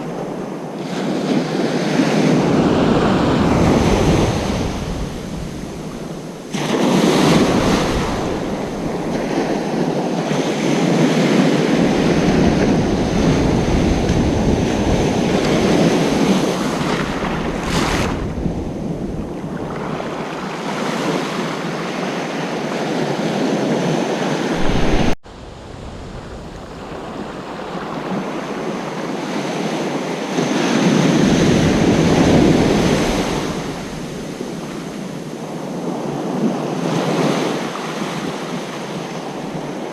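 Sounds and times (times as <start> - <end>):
ocean waves breaking on beach: 0.0 - 39.9
wind rumbling on microphone: 0.0 - 39.9.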